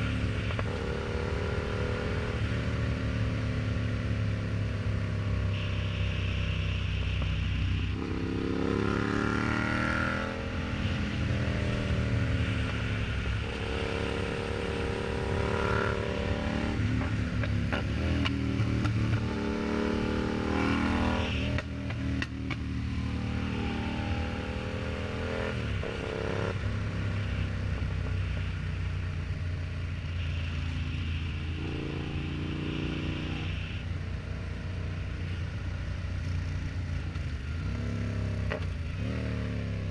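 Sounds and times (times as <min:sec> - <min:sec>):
motorcycle engine accelerating: 0:07.8 - 0:29.0.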